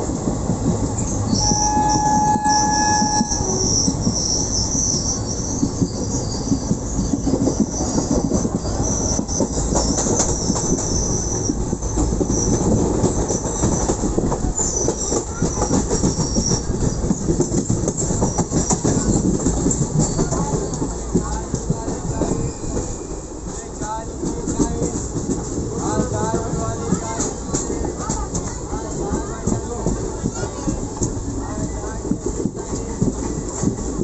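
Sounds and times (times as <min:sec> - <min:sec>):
train rumble and wheel clatter: 0:00.0 - 0:34.0
wheels squealing on track: 0:01.0 - 0:13.9.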